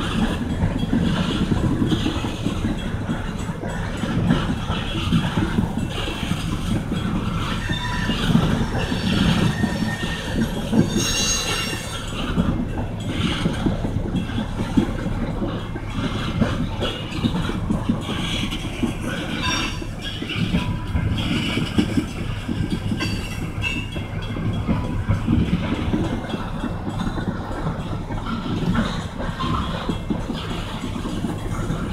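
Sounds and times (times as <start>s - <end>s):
train rumbling: 0.0s - 31.9s
wheels clattering over rails: 0.0s - 31.9s
high-pitched wheel squeal: 4.1s - 13.4s, 16.0s - 25.9s.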